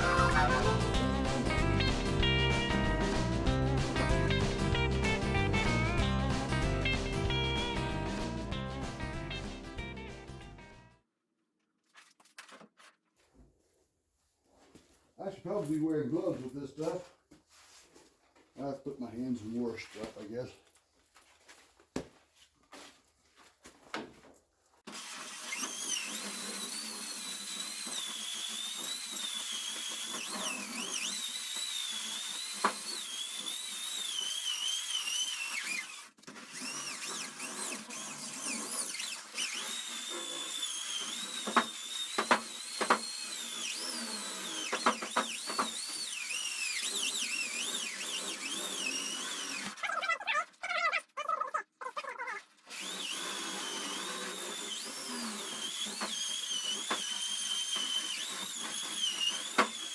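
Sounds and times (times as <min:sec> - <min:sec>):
grinder on metal: 0:00.0 - 0:09.0, 0:24.9 - 0:50.0, 0:51.9 - 0:59.9.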